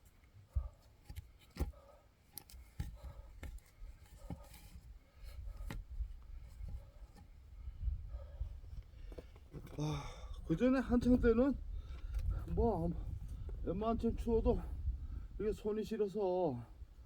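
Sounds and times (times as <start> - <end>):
axe splitting firewood: 0.6 - 6.0.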